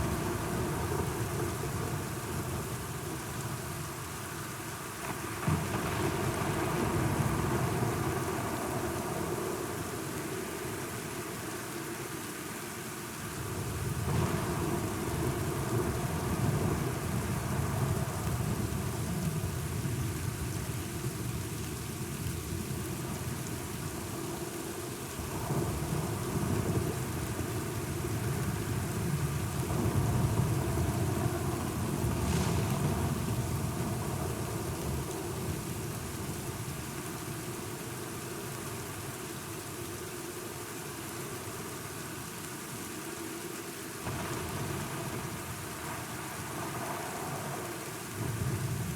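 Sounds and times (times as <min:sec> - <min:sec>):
steady rain: 0:00.0 - 0:48.9.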